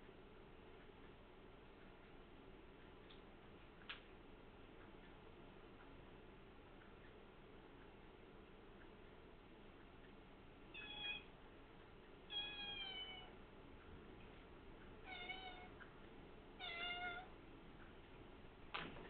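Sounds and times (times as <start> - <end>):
cat meowing: 10.8 - 11.3, 12.3 - 13.3, 15.0 - 15.7, 16.6 - 17.3.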